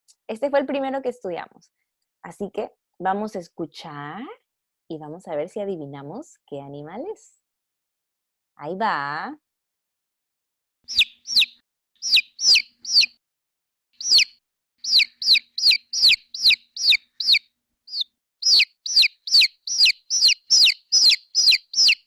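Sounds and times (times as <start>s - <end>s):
chick peeping: 10.9s - 13.1s, 14.0s - 22.0s.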